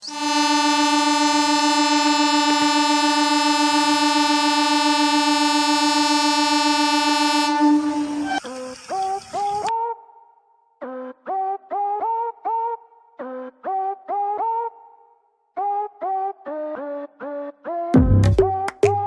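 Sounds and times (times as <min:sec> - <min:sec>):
short gliding notes: 0:00.0 - 0:08.6
loud horn-like tone: 0:00.0 - 0:09.7.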